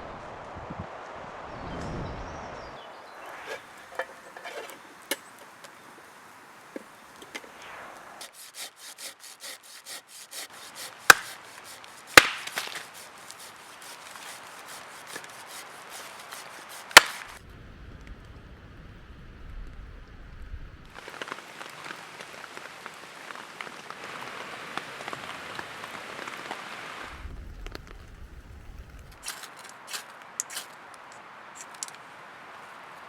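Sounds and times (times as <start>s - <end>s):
wood being handled: 3.4s - 5.6s, 8.2s - 17.4s, 29.2s - 32.0s
hand saw cutting wood: 8.2s - 17.4s.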